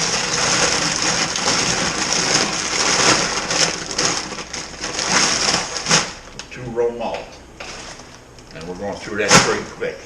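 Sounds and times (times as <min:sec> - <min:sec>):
grain kernels rattling: 0:00.0 - 0:06.2.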